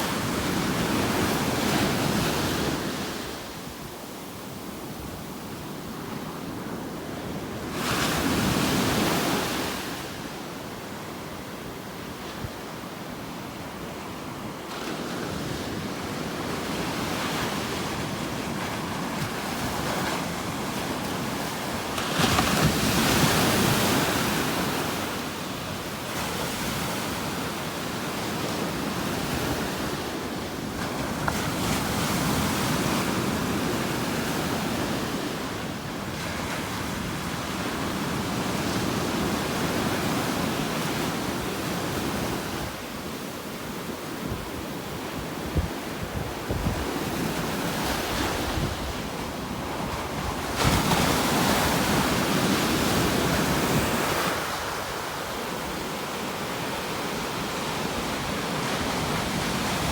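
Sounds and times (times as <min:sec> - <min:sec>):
waves breaking on beach: 0:00.0 - 0:59.9
wind noise on microphone: 0:44.2 - 0:55.9.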